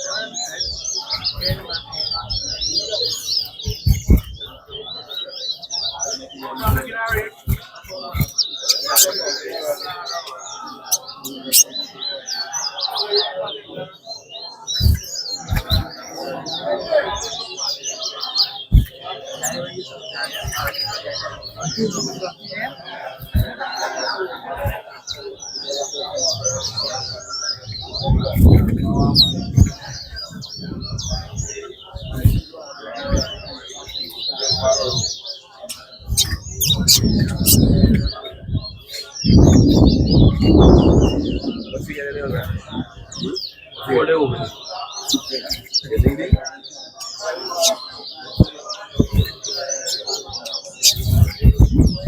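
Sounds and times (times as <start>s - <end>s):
songbirds chirping: 0.0s - 52.0s
short low thumps: 3.6s - 4.6s, 28.0s - 32.4s, 36.1s - 43.4s, 49.0s - 49.4s, 50.9s - 52.0s.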